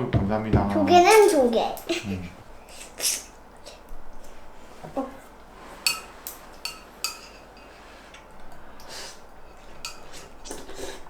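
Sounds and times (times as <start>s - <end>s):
cutlery and dishes clinking: 5.7s - 10.8s.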